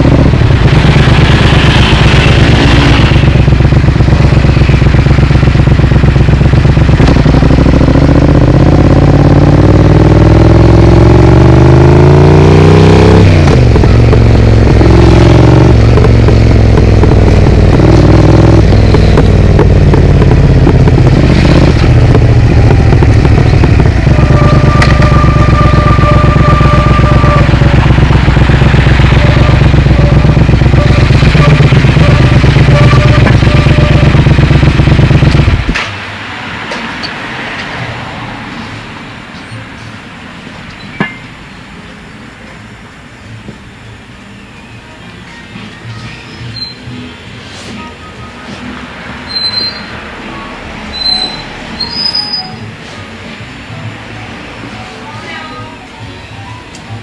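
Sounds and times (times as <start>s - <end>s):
motorcycle engine revving: 0.0s - 39.2s
high two-note tone: 22.4s - 34.7s.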